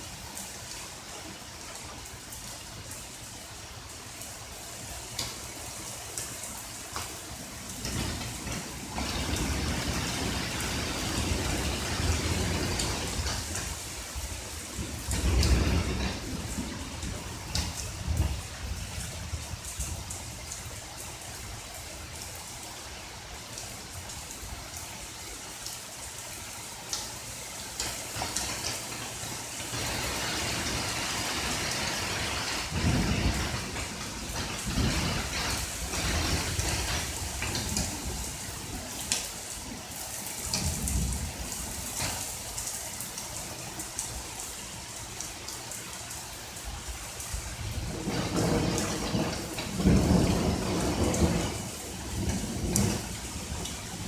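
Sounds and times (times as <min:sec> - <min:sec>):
steady rain falling: 0:00.0 - 0:54.0
thunder rumbling: 0:07.4 - 0:21.6, 0:27.9 - 0:42.3, 0:47.3 - 0:54.0.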